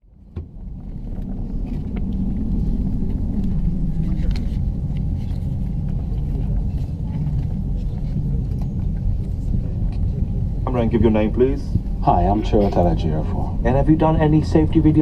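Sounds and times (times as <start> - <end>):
aircraft cabin rumble: 0.0 - 15.0
faint voices: 3.2 - 15.0.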